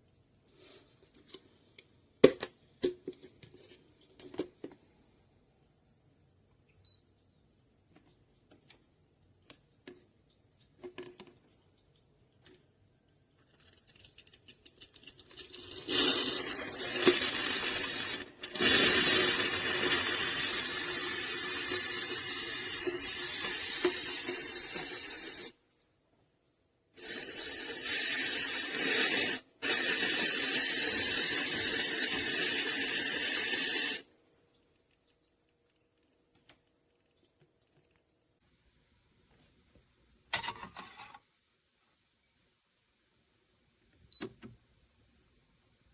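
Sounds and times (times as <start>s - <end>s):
espresso steam wand hissing: 15.6s - 25.5s, 27.0s - 34.0s.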